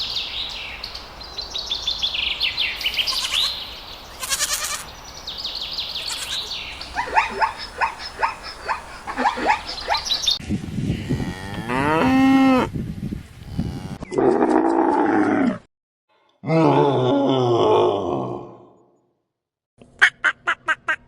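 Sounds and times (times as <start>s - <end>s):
bird chirping: 0.0s - 10.4s
cattle mooing: 11.0s - 12.7s, 13.5s - 14.0s.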